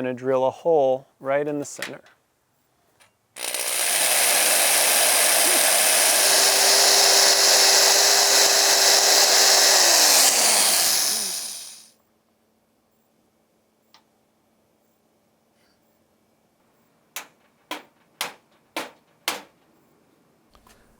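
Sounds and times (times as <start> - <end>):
electric drill boring into wood: 3.4 - 11.9.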